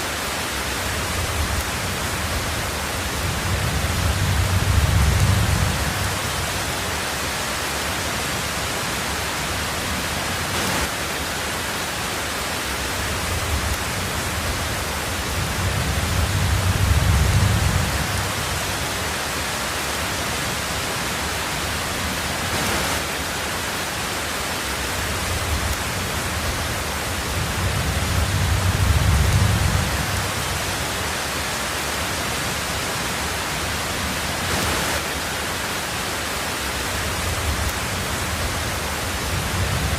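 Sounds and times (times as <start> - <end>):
heavy rain on a tin roof: 0.0 - 39.9
low rumbles of thunder: 1.0 - 6.7, 13.2 - 19.0, 25.2 - 30.8, 37.2 - 39.9.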